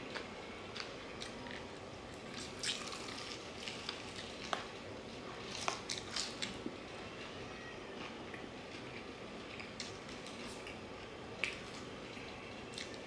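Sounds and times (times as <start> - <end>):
chewing and mouth smacks: 2.2 - 4.7, 8.9 - 11.9.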